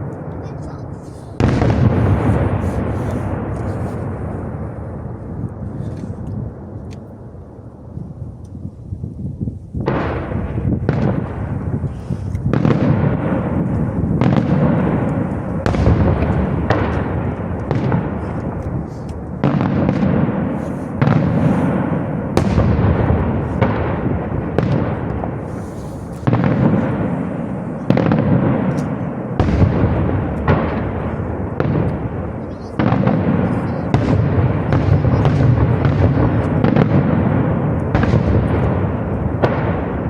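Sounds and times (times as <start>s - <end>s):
fireworks bangs echoing: 0.0s - 8.2s, 9.3s - 40.0s.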